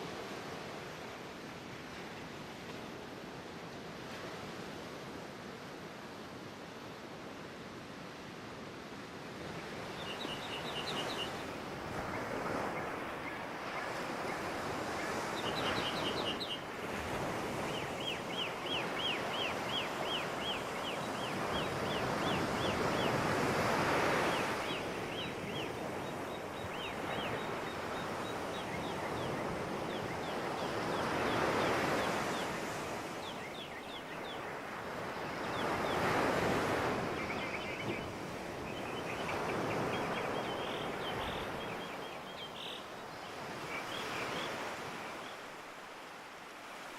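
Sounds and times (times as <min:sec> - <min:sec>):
surf-like wash: 0:00.0 - 0:46.9.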